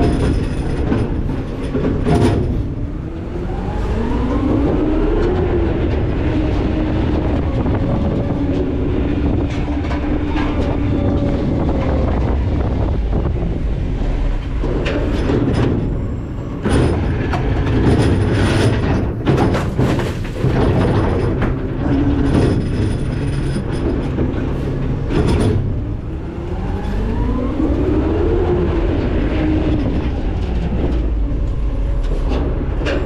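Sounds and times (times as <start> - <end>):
clattering and bangs: 0.0 - 2.8, 14.4 - 26.0
truck engine rumble: 0.0 - 33.0.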